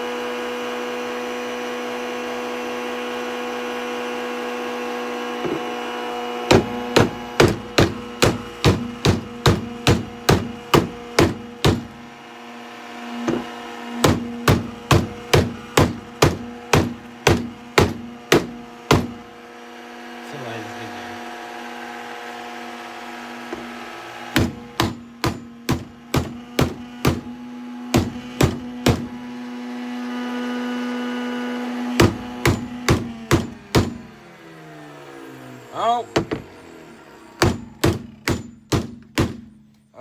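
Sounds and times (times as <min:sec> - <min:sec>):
vacuum cleaner motor humming: 0:00.0 - 0:37.8
hammer hitting vacuum cleaner: 0:05.3 - 0:12.1, 0:13.2 - 0:19.4, 0:23.4 - 0:29.4, 0:30.2 - 0:39.6.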